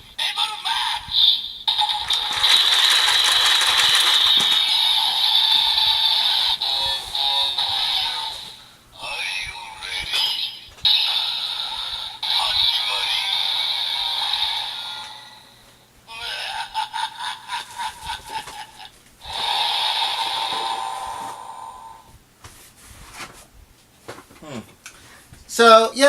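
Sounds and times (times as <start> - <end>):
toy belt electronic sound effects: 0.6 - 8.6, 10.2 - 15.5, 19.3 - 20.9.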